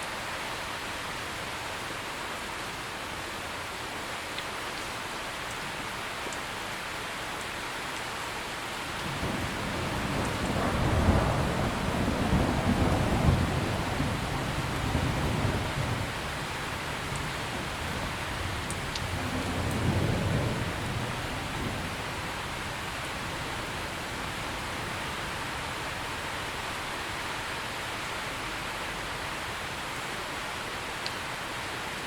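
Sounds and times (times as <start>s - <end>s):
heavy rain hissing: 8.3s - 32.0s
low thunder rumble: 9.0s - 26.6s.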